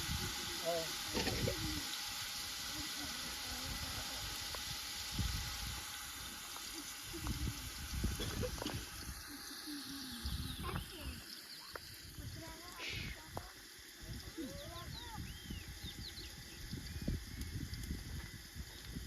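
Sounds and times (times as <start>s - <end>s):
steady hissing rushing noise: 0.0s - 19.0s
faint voices: 6.3s - 15.4s.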